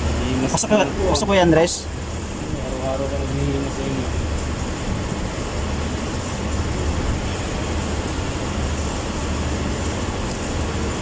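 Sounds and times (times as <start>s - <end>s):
low rumble of motor vehicle: 0.0s - 11.0s.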